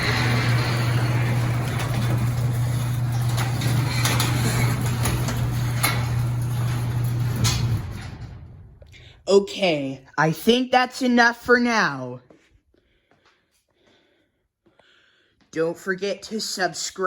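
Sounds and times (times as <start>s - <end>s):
chain and door noise: 0.0s - 9.1s
garage door opener motor hum: 0.0s - 9.2s.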